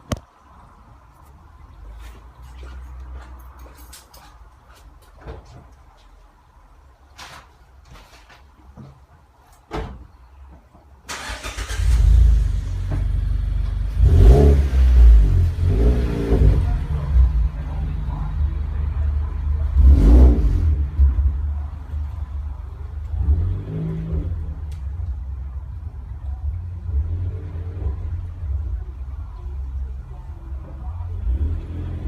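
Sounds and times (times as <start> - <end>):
engine revving: 11.1 - 19.0, 19.6 - 21.3, 23.1 - 24.7, 31.2 - 32.0
car engine starting and idling: 11.1 - 29.8.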